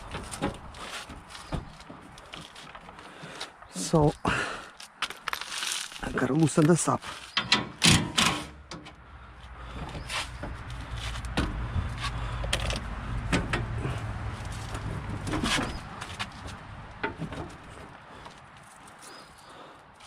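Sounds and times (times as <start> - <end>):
sharp metal clanks: 7.4 - 8.8.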